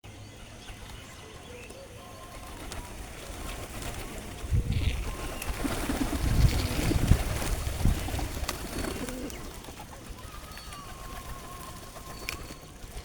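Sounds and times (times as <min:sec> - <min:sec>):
pigeons cooing: 0:00.5 - 0:13.0.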